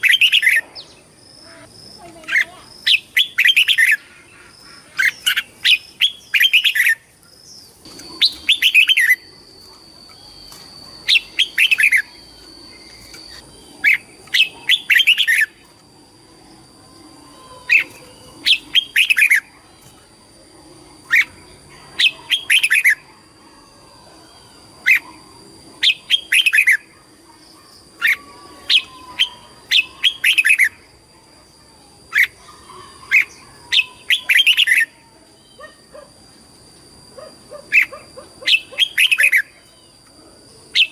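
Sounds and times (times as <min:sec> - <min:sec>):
bird singing whistled phrases: 0:08.2 - 0:09.3, 0:10.0 - 0:15.6.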